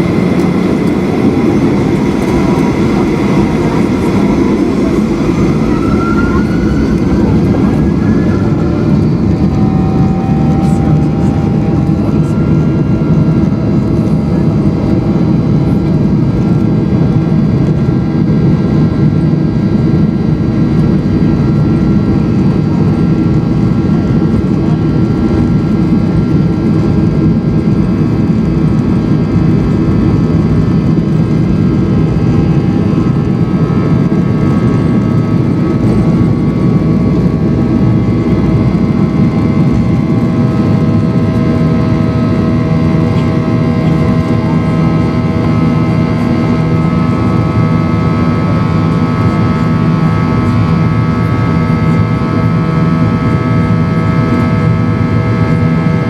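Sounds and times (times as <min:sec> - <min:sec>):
jet engine cabin rush: 0:00.0 - 0:56.0
whining engine tones: 0:00.0 - 0:56.0.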